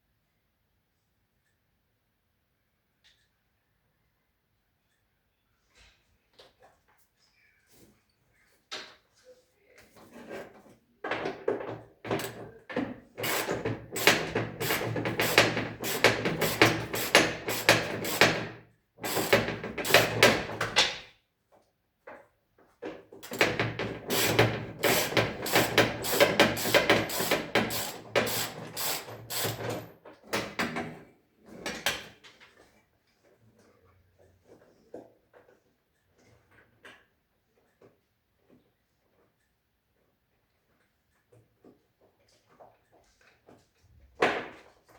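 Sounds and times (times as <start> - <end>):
rapid knocking and clattering: 11.1 - 21.0, 23.2 - 30.8.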